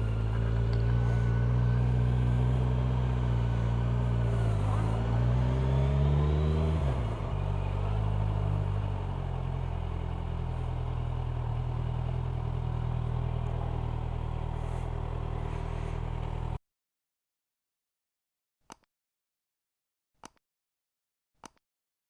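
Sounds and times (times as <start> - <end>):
motorcycle engine idling: 0.0 - 5.2, 7.3 - 16.6.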